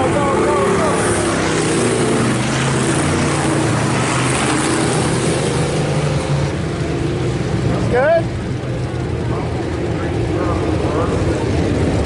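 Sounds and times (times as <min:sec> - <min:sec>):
race car engines at full throttle: 0:00.0 - 0:12.0.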